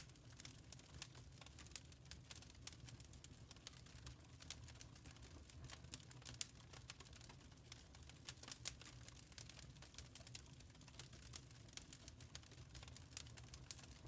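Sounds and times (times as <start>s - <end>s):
faint wood fire crackling: 0.0s - 14.0s.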